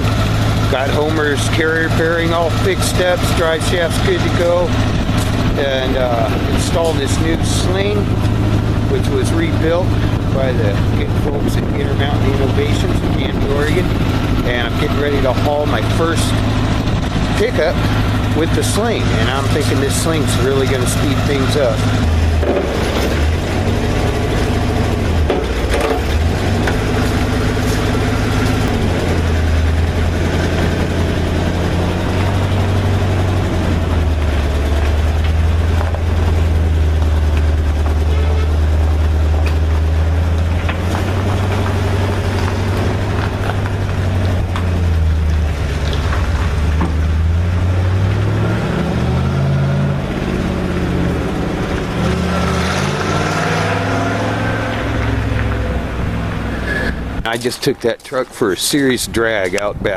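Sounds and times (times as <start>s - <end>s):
tow truck engine running: 0.0s - 59.9s
knocks and rattles: 9.9s - 48.3s.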